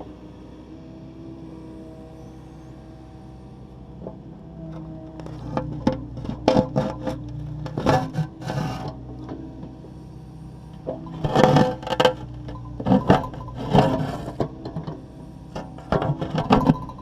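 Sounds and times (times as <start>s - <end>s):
excavator engine running: 0.0s - 17.0s
bucket scraping concrete: 5.7s - 8.9s, 11.1s - 14.4s.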